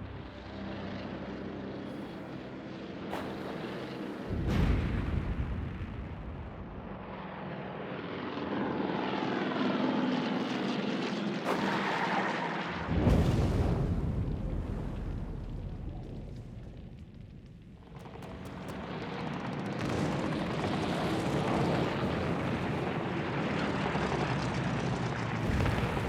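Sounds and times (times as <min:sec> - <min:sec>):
propeller plane engines: 0:00.0 - 0:04.8, 0:06.5 - 0:13.0, 0:15.9 - 0:26.0
deep boom: 0:12.9 - 0:18.4, 0:25.4 - 0:26.0.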